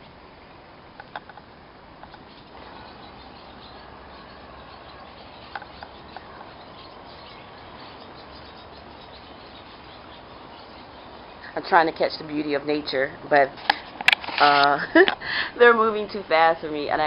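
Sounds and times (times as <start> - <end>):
background hiss: 0.0 - 17.0
faint bird chirps: 2.0 - 11.6.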